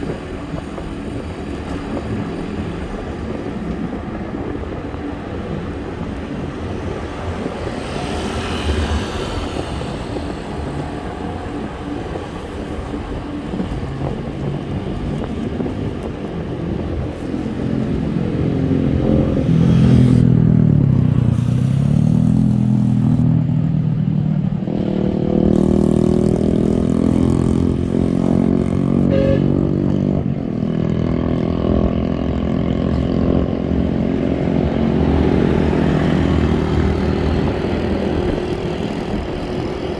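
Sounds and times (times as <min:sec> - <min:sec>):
motorbike engine running: 0:00.0 - 0:39.9
wind and road noise: 0:00.0 - 0:39.9.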